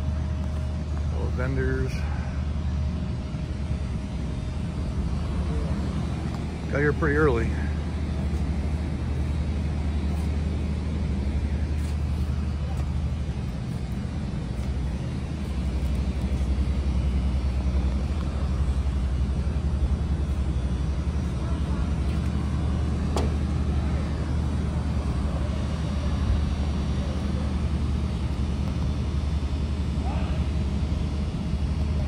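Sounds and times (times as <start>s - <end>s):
steady low rumble: 0.0s - 32.0s
faint voices: 0.6s - 32.0s.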